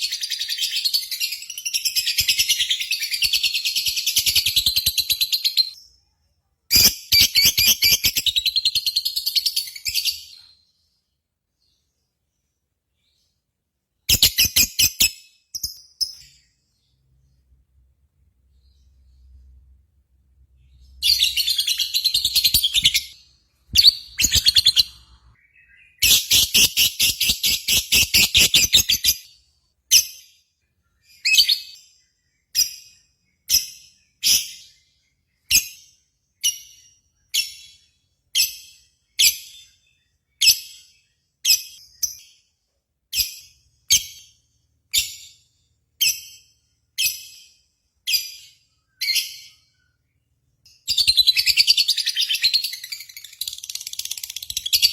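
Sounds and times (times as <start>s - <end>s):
bird chattering and chirping: 21.0s - 29.3s, 50.9s - 54.9s.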